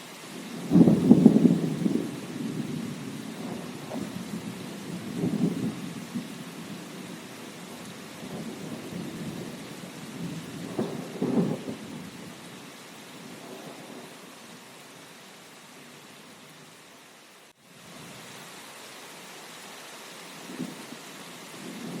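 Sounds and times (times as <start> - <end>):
rain hissing: 0.0 - 22.0
thunder rumbling: 0.5 - 12.5, 21.5 - 22.0.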